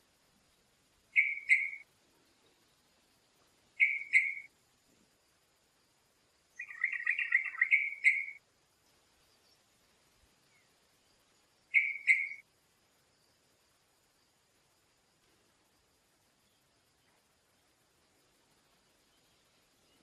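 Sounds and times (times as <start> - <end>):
songbird singing: 0.0 - 20.0.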